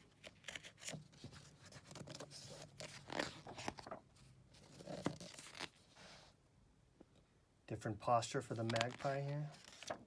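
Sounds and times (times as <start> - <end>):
book pages turning: 0.0 - 6.2, 8.5 - 10.0.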